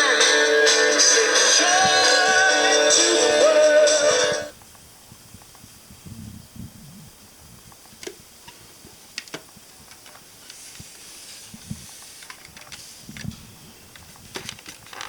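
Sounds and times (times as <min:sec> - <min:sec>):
faint hiss: 0:03.5 - 0:14.6.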